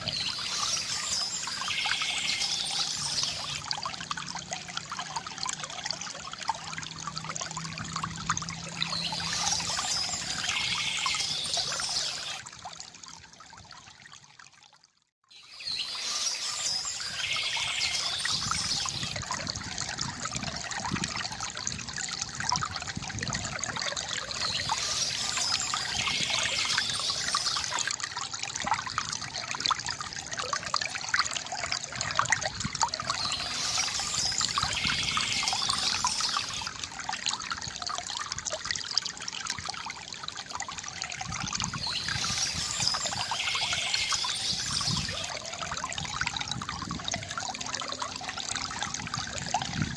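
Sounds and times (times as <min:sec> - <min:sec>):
fountain water trickling and splashing: 0:00.0 - 0:49.9.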